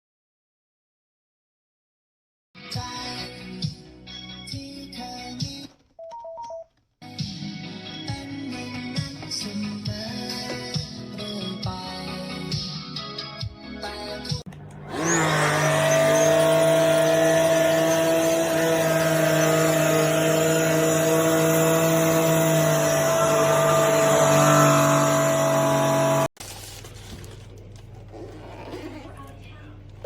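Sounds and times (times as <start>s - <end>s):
vacuum cleaner motor whining: 14.6s - 26.4s.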